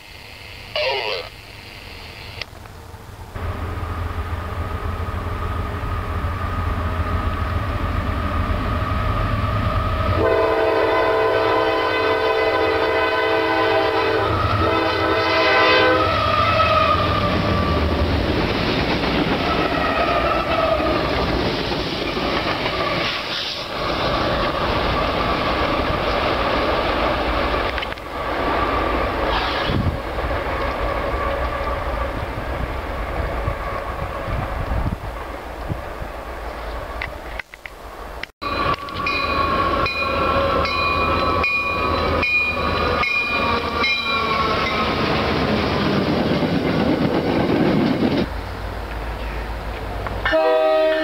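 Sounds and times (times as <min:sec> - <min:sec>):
freight train rumbling: 0:02.1 - 0:51.0
locomotive air horn chord: 0:10.1 - 0:17.1, 0:50.2 - 0:51.0.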